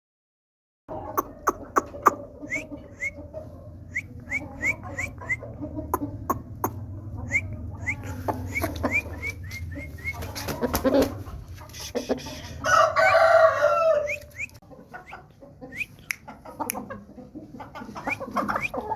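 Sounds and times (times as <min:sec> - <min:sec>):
hen clucking: 0:00.9 - 0:18.9
rooster crowing: 0:12.2 - 0:14.4.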